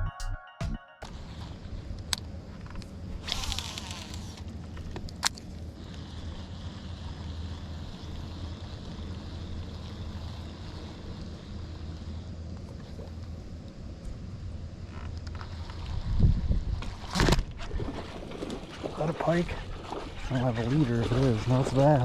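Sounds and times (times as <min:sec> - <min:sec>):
wind buffeting microphone: 0:15.9 - 0:22.0.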